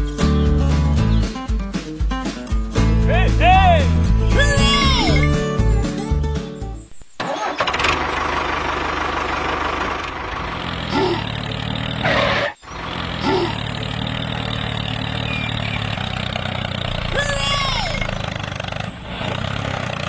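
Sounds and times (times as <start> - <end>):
tractor engine running: 2.8 - 20.0.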